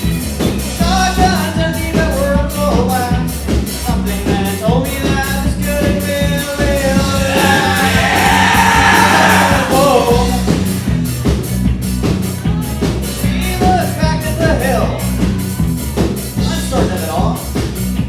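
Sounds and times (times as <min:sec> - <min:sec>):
live rock band: 0:00.0 - 0:18.0
singer's voice wavering: 0:06.9 - 0:10.4.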